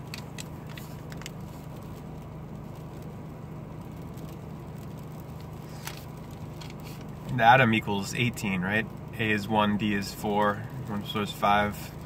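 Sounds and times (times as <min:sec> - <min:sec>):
paper crinkling: 0:00.0 - 0:03.1
car engine idling hum: 0:00.0 - 0:12.0
car heater running: 0:00.0 - 0:12.0.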